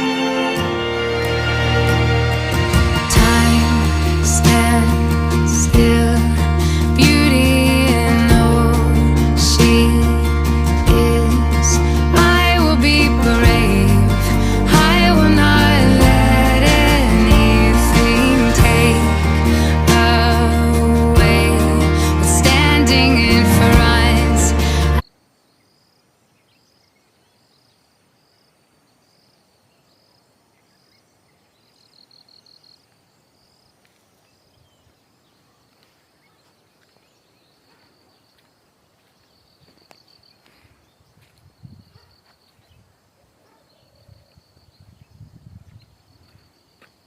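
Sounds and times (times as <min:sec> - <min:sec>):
low rumbles: 0:00.8 - 0:25.0
faint insect chirping: 0:25.0 - 0:47.0.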